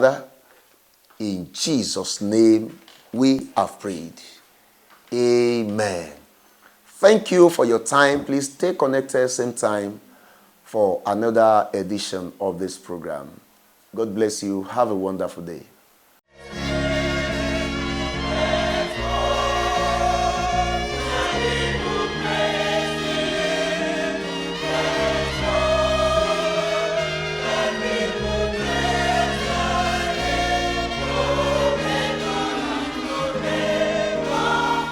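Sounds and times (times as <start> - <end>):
choir singing: 16.3 - 34.9
instrumental backing: 16.3 - 34.9.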